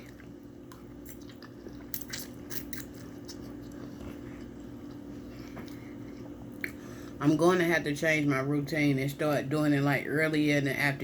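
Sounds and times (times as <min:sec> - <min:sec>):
person chewing food: 0:00.0 - 0:06.9
steady low hum: 0:00.0 - 0:11.0.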